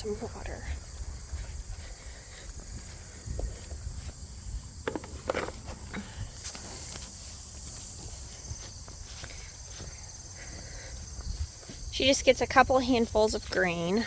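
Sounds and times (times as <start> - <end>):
footsteps: 0.0 - 14.0
insects chirring: 0.0 - 14.0
knocks and rustles: 4.8 - 8.2.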